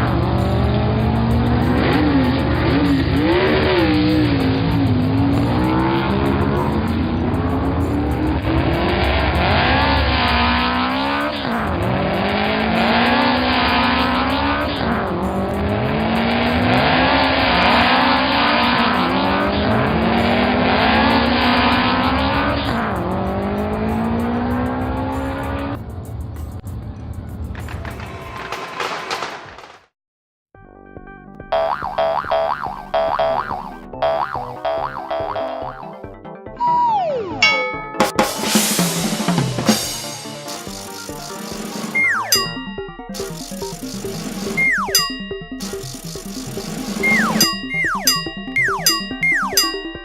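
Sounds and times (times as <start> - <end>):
cartoon vehicle engine revving: 0.0 - 25.8, 31.6 - 36.0, 36.6 - 50.0.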